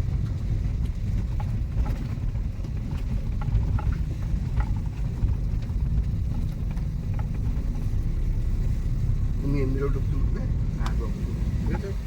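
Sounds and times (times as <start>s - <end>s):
car engine and road rumble: 0.0s - 12.0s
light clicks and rattles: 0.1s - 8.2s.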